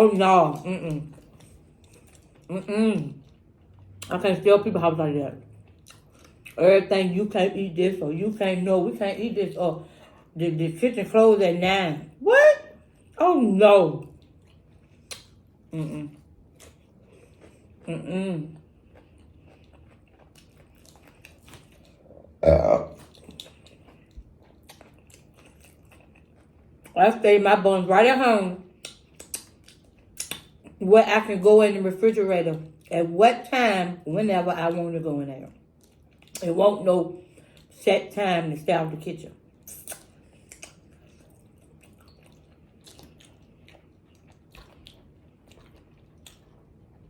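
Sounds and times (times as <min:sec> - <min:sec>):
faint chewing: 0:00.4 - 0:04.2, 0:05.4 - 0:06.6, 0:14.0 - 0:27.0, 0:28.6 - 0:30.8, 0:35.4 - 0:36.6, 0:39.6 - 0:47.0
chewing food clicks: 0:14.1 - 0:15.3, 0:28.8 - 0:30.8
woman burping: 0:22.4 - 0:23.0.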